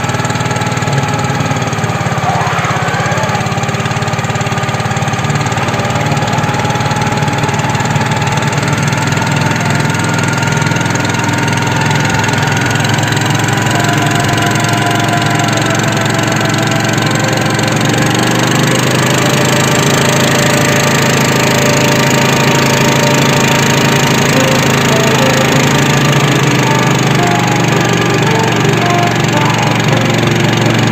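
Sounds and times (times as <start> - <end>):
small engine running: 0.0 - 30.9.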